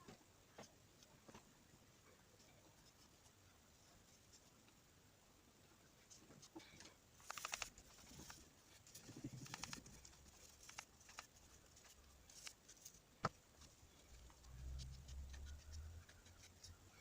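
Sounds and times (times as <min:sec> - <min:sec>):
faint low hum: 0:00.0 - 0:17.0
faint clicks: 0:06.8 - 0:11.4.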